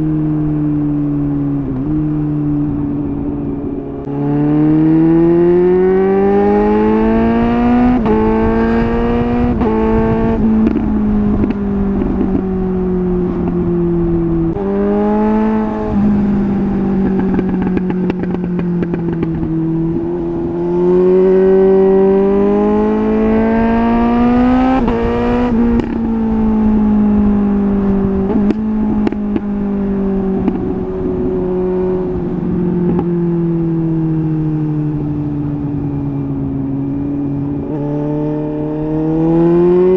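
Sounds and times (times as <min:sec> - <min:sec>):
motorcycle engine accelerating: 0:00.0 - 0:39.9
exhaust crackles on overrun: 0:06.7 - 0:37.8.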